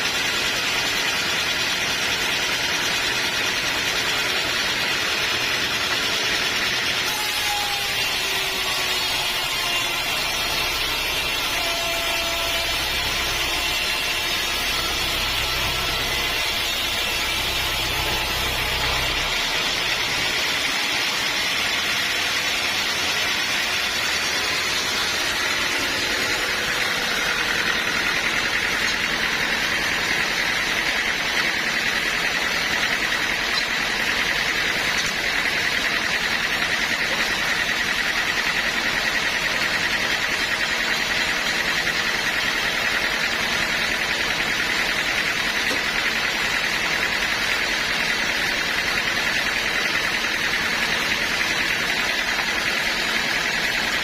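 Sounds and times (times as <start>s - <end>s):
sawmill machinery running: 0.0s - 54.0s
high whine: 9.3s - 21.8s
low hum: 9.5s - 20.8s.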